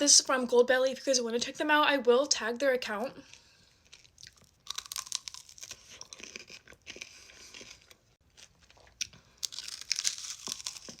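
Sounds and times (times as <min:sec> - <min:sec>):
chewing and crunching: 0:03.2 - 0:11.0.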